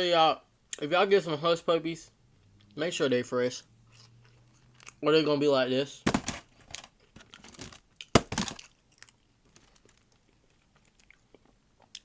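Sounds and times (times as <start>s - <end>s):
hard food knocking: 6.1s - 6.4s, 8.2s - 8.6s
paper container crinkling: 6.1s - 8.7s.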